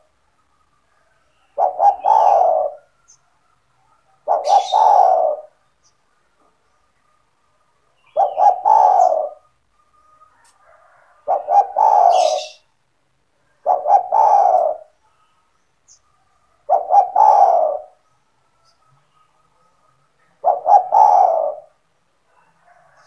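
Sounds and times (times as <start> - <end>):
dove cooing: 0.9 - 3.2, 4.0 - 5.6, 8.0 - 12.7, 13.6 - 15.0, 16.5 - 18.0, 20.2 - 23.0.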